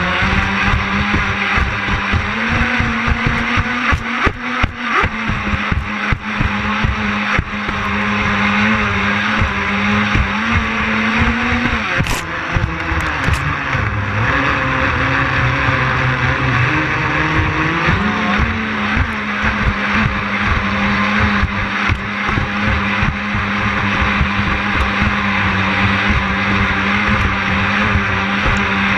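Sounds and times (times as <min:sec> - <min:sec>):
electric motors whining: 0:00.0 - 0:28.9.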